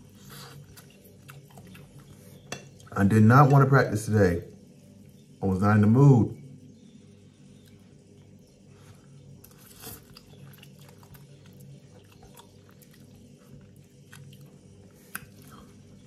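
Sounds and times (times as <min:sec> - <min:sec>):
man chewing: 0:00.0 - 0:02.9, 0:07.6 - 0:16.0.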